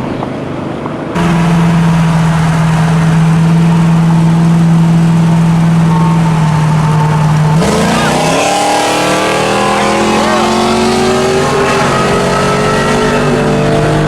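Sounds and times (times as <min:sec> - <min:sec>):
engine droning at raised speed: 0:01.1 - 0:14.0.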